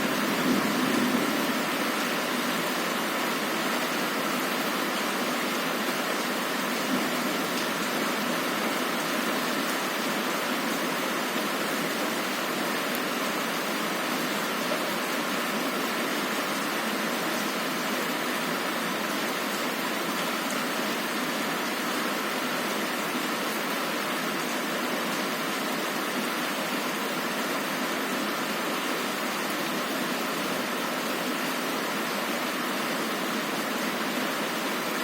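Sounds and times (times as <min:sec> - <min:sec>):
heavy rain on a window: 0:00.0 - 0:35.0.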